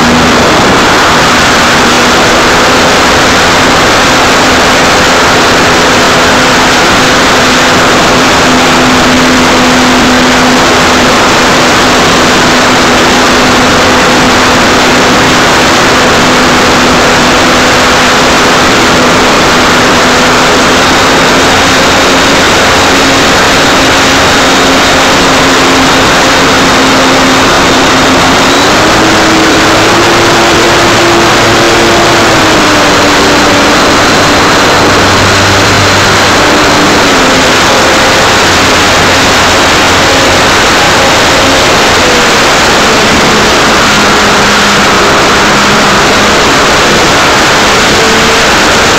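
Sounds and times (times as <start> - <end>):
model plane motor and propeller drone: 0.0 - 48.9
rushing air: 0.0 - 48.9.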